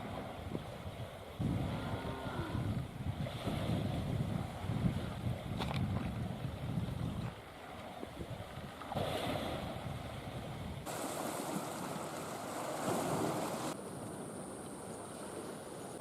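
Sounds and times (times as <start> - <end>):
wind noise on microphone: 0.0 - 11.6
lake water washing: 0.0 - 16.0.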